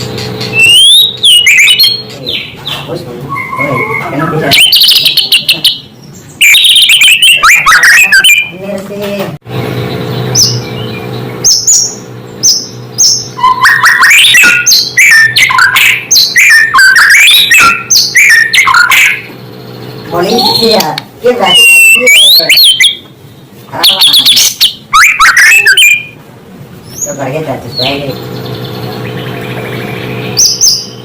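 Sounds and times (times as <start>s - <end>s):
bird singing whistled phrases: 0.5s - 8.6s, 10.3s - 19.3s, 21.4s - 23.0s, 23.7s - 26.2s.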